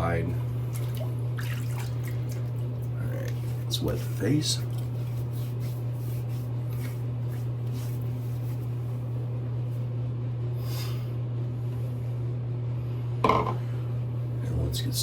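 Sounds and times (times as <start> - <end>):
steady low hum: 0.0 - 15.0
water splashing: 0.6 - 2.7.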